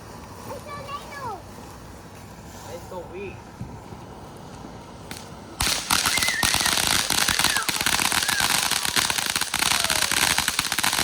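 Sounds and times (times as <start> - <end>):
firework crackling pops: 5.0 - 11.0.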